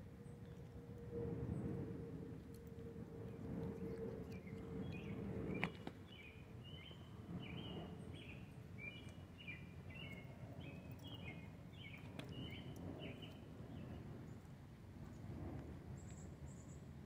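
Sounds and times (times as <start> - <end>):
low background rumble: 0.0 - 17.0
bird chirping: 4.3 - 14.0.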